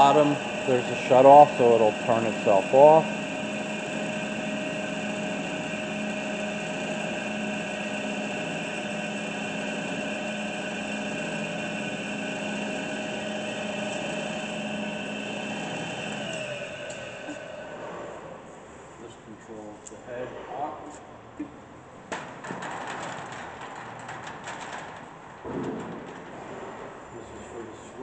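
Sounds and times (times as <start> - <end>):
saw spinning down: 0.0 - 18.4
bandsaw motor whine: 0.0 - 18.5.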